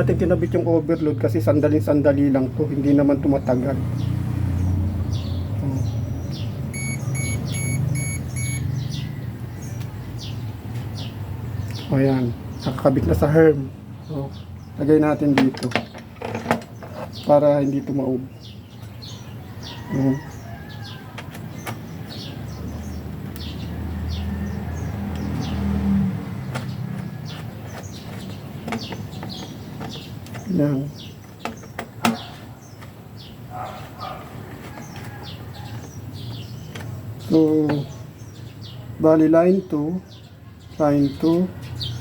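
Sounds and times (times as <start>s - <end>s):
small birds chirping: 0.0s - 42.0s
high bird chirps: 5.2s - 10.4s
short electronic beeps: 6.7s - 8.7s.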